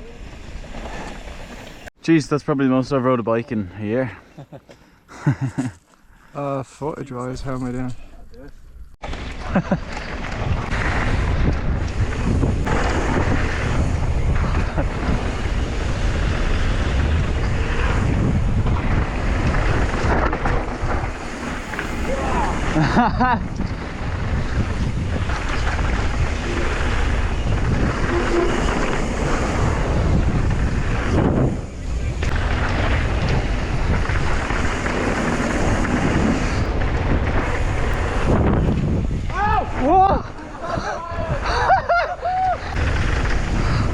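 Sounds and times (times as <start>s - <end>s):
bike rumbling on trail: 9.0s - 43.9s
wind rushing over microphone: 9.0s - 43.9s.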